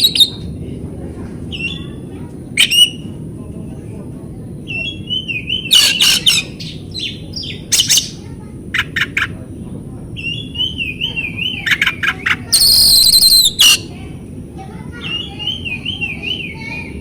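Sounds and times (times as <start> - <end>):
bird singing whistled phrases: 0.0 - 0.4, 12.5 - 13.9, 15.0 - 16.9
bird harsh scolding call: 5.7 - 6.6, 12.6 - 13.9.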